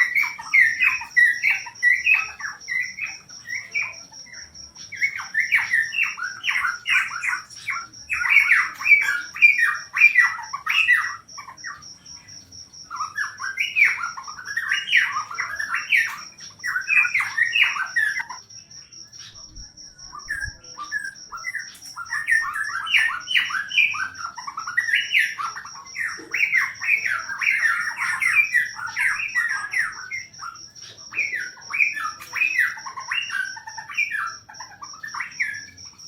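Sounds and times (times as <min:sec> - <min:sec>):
cricket trilling: 0:00.0 - 0:36.0
songbird singing rapid phrases: 0:00.0 - 0:36.0.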